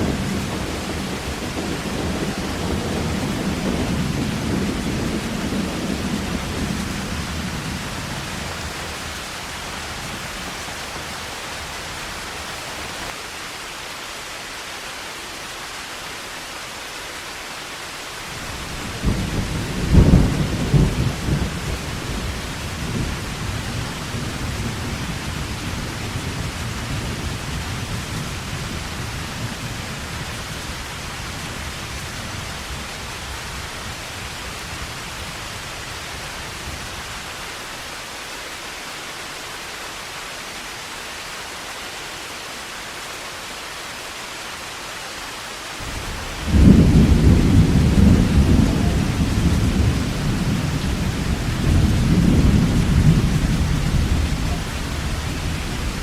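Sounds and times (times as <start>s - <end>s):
thunder rumbling: 0.0s - 13.1s, 18.3s - 36.8s, 45.8s - 56.0s
heavy rain: 0.0s - 56.0s
loud peal of thunder: 18.6s - 28.4s, 45.8s - 56.0s.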